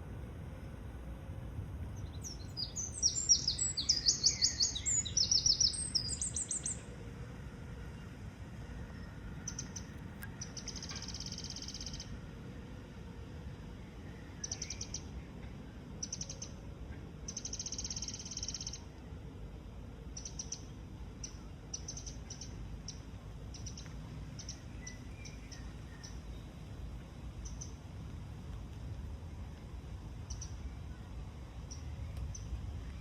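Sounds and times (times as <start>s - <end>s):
steady low rumble: 0.0s - 17.6s, 18.2s - 33.0s
small bird chirping: 2.0s - 6.9s, 9.4s - 12.1s, 14.4s - 15.2s, 17.3s - 18.8s, 20.2s - 26.4s, 30.3s - 30.7s.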